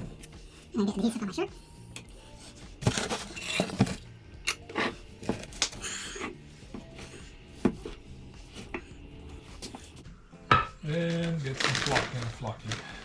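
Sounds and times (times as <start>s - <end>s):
small items knocking and clinking: 11.2s - 13.0s.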